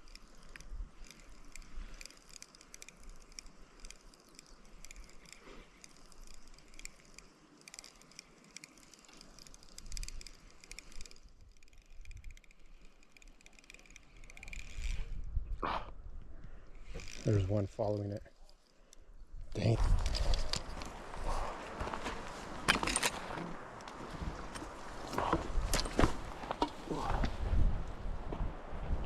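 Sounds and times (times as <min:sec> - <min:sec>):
fishing reel ticking whir: 0:00.0 - 0:15.2, 0:16.7 - 0:17.6.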